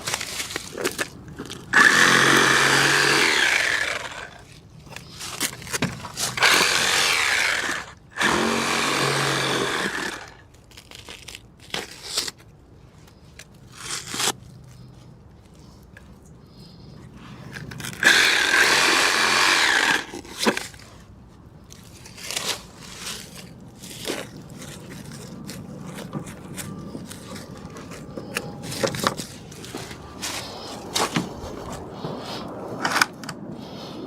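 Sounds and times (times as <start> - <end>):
power saw cutting wood: 1.7 - 4.4, 6.4 - 10.4, 18.0 - 20.6.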